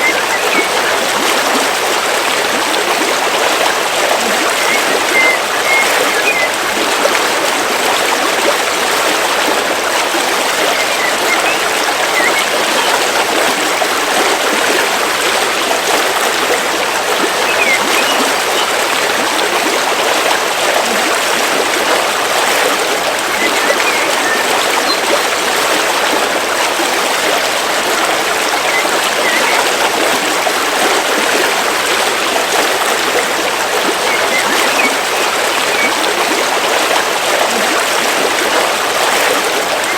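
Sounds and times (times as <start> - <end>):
bird chirps: 0.0 - 1.0, 4.6 - 6.5, 10.6 - 13.0, 17.4 - 18.7, 23.4 - 25.1, 28.6 - 29.6, 34.0 - 35.9
river flowing over rocks: 0.0 - 39.9.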